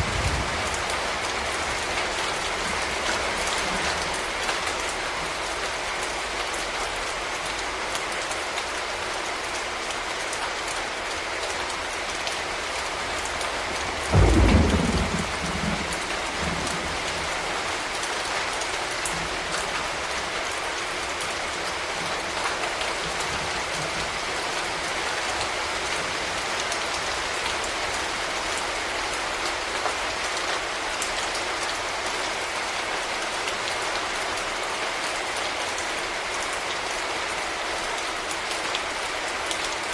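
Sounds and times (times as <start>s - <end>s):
low rumble of thunder: 0.0s - 4.4s, 13.9s - 17.6s
steady rain: 0.0s - 39.9s.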